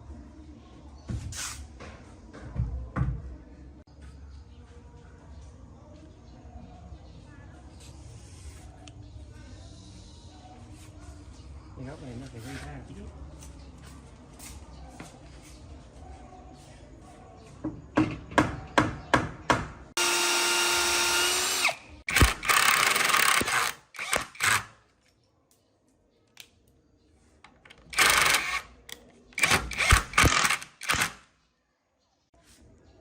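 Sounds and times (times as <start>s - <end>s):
harsh power tool noise: 20.0s - 24.7s, 27.9s - 28.6s, 29.4s - 31.2s
power drill running: 20.0s - 24.7s, 27.9s - 28.6s, 29.4s - 31.1s.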